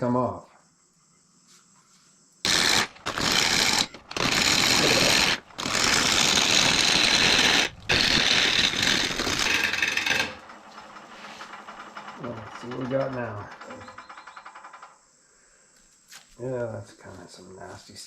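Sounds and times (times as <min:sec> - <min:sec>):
gouge cutting wood on lathe: 0:02.5 - 0:10.5.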